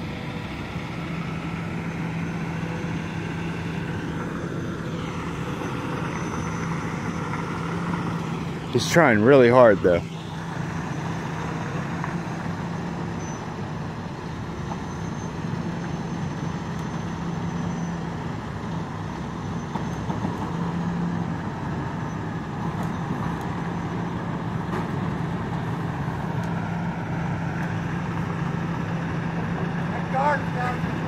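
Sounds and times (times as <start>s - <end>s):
diesel truck engine humming: 0.0s - 31.0s.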